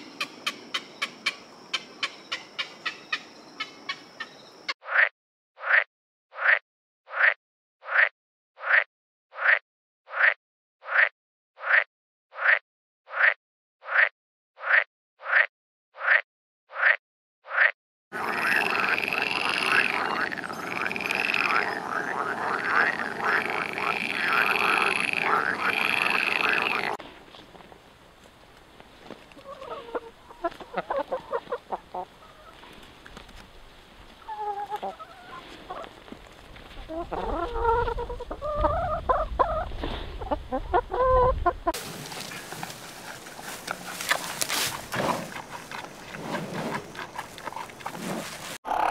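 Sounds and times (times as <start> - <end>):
tree frog croaking: 0.1 - 27.0, 48.6 - 48.9
hens and rooster clucking: 18.2 - 27.0, 29.3 - 33.0, 34.2 - 48.9.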